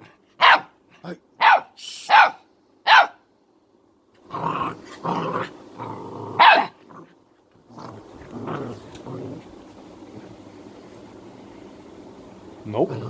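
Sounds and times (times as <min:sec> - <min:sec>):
puppy barking: 0:00.4 - 0:00.8, 0:01.4 - 0:03.2, 0:06.4 - 0:06.8
puppy growling: 0:04.2 - 0:11.2, 0:12.8 - 0:13.0.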